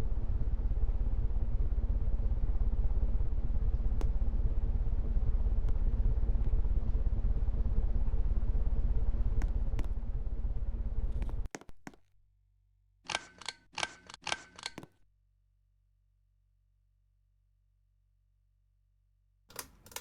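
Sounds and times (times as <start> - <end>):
ceiling fan rumbling: 0.0 - 11.5.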